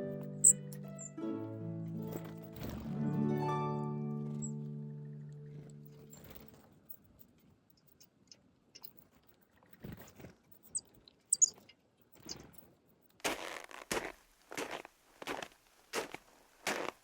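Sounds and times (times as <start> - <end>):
background music: 0.0 - 6.5
high bird chirps: 0.4 - 1.2, 10.7 - 11.6.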